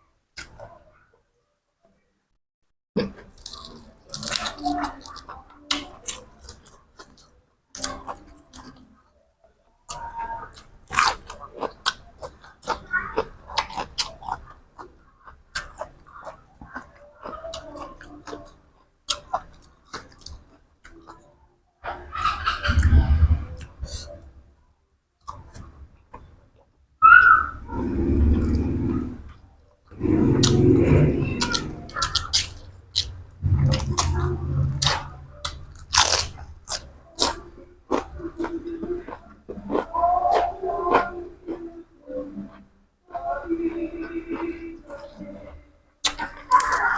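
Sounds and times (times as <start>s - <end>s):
crunchy food chewing: 3.0s - 8.9s, 9.9s - 21.3s, 27.8s - 46.9s
low steady hum: 27.6s - 42.5s
loud low bump: 33.4s - 35.4s.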